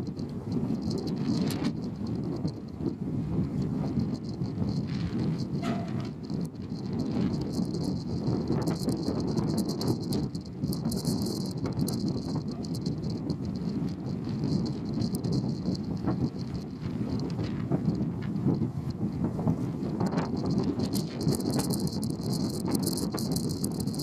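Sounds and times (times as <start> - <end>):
crackling rattles: 0.0 - 24.0
ferry engine rumble: 0.0 - 24.0.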